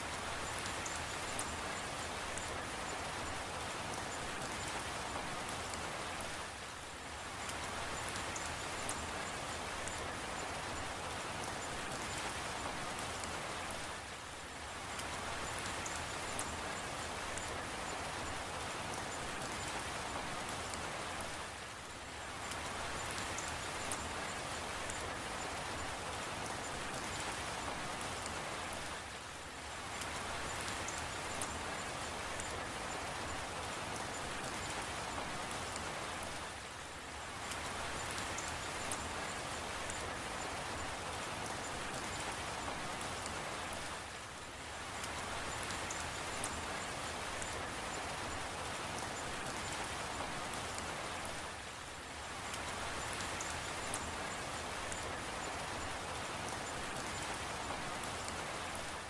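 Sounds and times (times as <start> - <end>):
steady rain falling: 0.0 - 59.0
faint drip ticks: 14.8 - 21.4, 22.3 - 29.1, 29.9 - 44.2, 44.9 - 51.8, 52.4 - 59.0.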